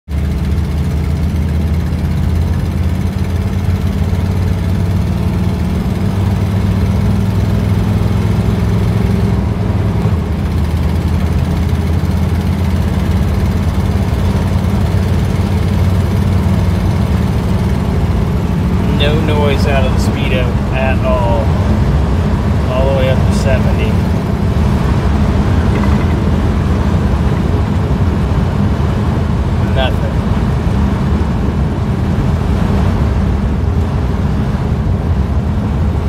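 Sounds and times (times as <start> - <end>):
car engine and exhaust drone: 0.0 - 36.0.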